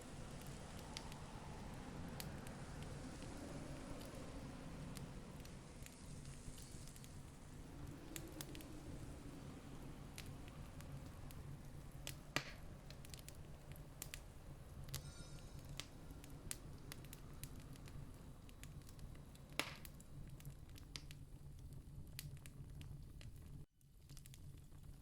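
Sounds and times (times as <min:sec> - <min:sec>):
campfire crackling: 0:00.0 - 0:25.0.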